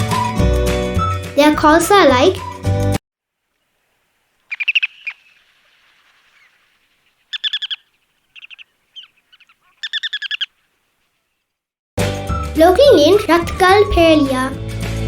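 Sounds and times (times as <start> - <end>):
bird chattering calls: 4.4 - 11.2.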